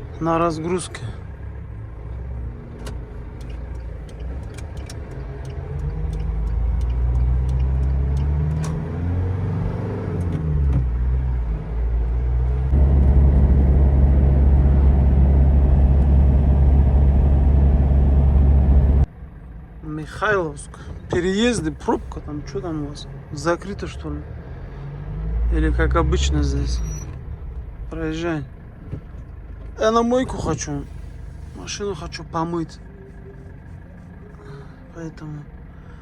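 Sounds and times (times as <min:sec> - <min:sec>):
van engine accelerating: 0:00.0 - 0:36.0
light clicks: 0:02.8 - 0:08.8.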